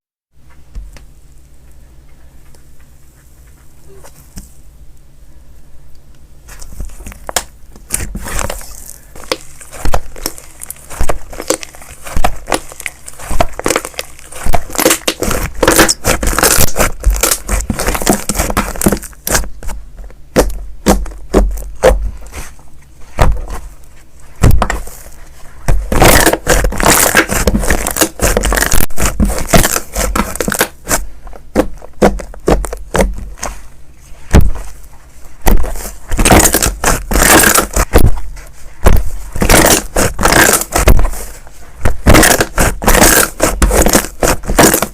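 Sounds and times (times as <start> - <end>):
slime crackling and popping: 7.1 - 22.0, 25.7 - 33.5, 35.4 - 44.9.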